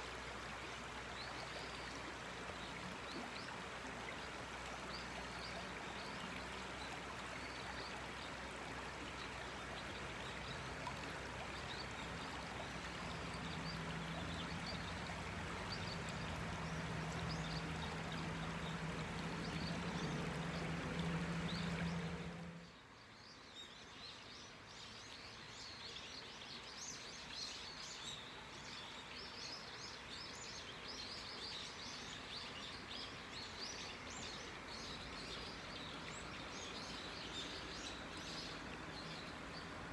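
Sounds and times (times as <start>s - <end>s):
gently running water: 0.0s - 22.8s, 32.3s - 39.9s
river flowing: 0.0s - 23.6s, 24.2s - 39.9s
low steady hum: 10.2s - 22.8s
small birds chirping: 11.6s - 22.8s.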